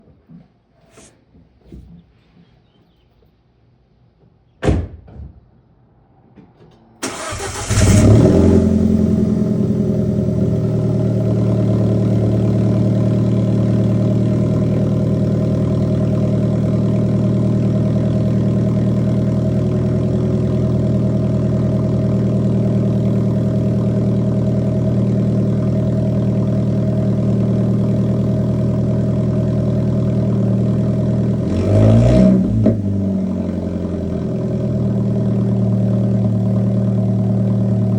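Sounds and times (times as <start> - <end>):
car engine starting and idling: 7.0 - 37.9.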